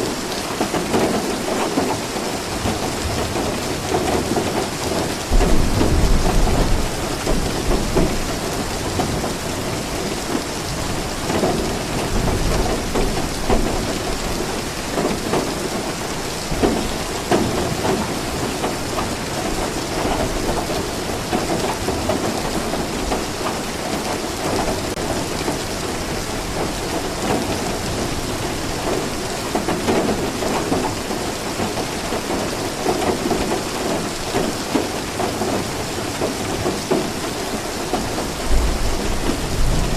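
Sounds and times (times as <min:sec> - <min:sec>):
rain falling: 0:00.0 - 0:39.9
low rumble of thunder: 0:02.6 - 0:22.8, 0:37.9 - 0:39.9.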